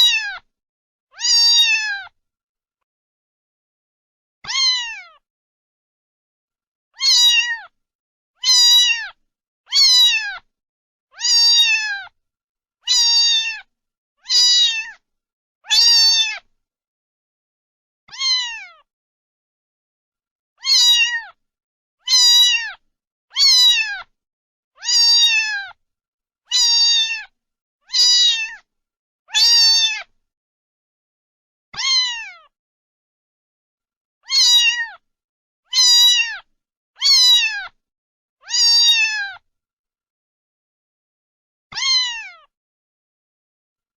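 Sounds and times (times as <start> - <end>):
cat meowing: 0.0 - 0.5, 1.1 - 2.2, 4.4 - 5.2, 7.0 - 7.8, 8.4 - 10.5, 11.1 - 12.2, 12.9 - 15.0, 15.6 - 16.5, 18.1 - 18.9, 20.6 - 21.4, 22.0 - 22.8, 23.4 - 24.1, 24.8 - 25.8, 26.5 - 27.3, 27.9 - 28.7, 29.3 - 30.1, 31.8 - 32.5, 34.2 - 35.0, 35.7 - 37.8, 38.4 - 39.4, 41.7 - 42.5.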